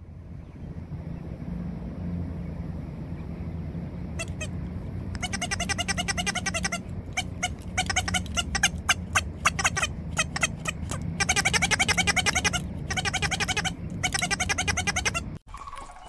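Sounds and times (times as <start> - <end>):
low background rumble: 0.0 - 15.4
ducklings peeping: 4.2 - 4.6, 5.2 - 15.4.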